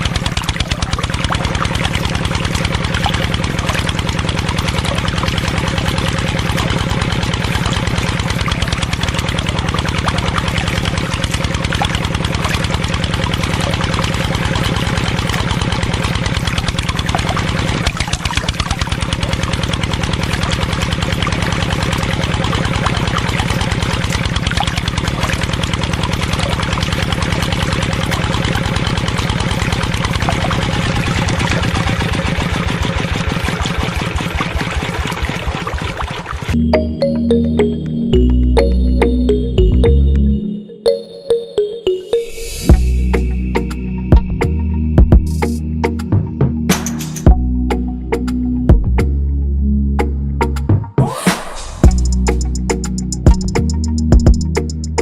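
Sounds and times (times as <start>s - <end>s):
small engine running: 0.0s - 36.6s, 51.4s - 55.0s.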